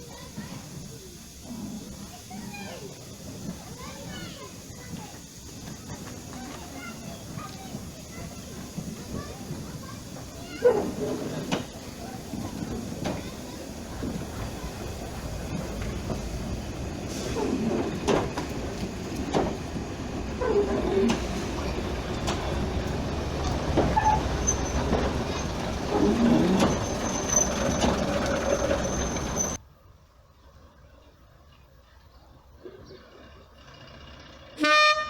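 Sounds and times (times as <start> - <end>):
train rumbling: 0.0 - 29.6
thin high squeal: 26.6 - 29.6.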